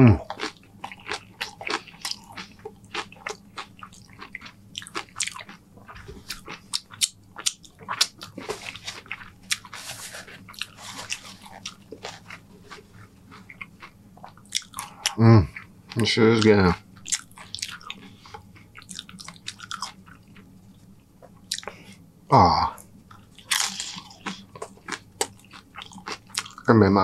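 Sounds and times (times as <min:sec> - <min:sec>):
chewing crunchy chips: 0:00.0 - 0:22.0, 0:22.8 - 0:26.8
paper napkin rustling: 0:09.7 - 0:12.9.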